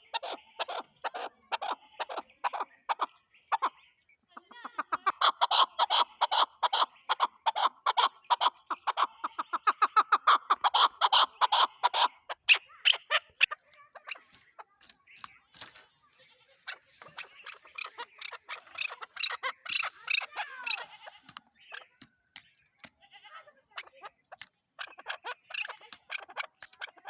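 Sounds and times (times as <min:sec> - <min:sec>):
partridge calling harsh notes: 0:10.3 - 0:23.0, 0:23.7 - 0:27.0.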